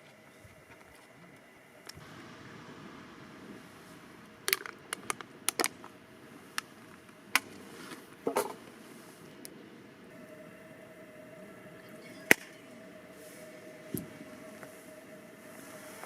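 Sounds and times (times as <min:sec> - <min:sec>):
faint steady background noise: 0:00.0 - 0:16.0.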